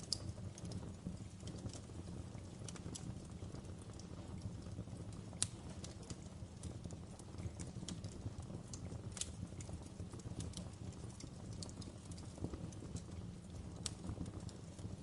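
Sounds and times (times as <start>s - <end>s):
low rumble of burning fire: 0.0s - 15.0s
wood fire crackling: 0.0s - 15.0s.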